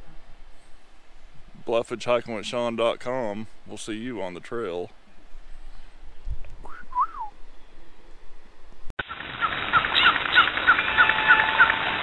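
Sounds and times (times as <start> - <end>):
bird chirping: 9.4 - 11.9.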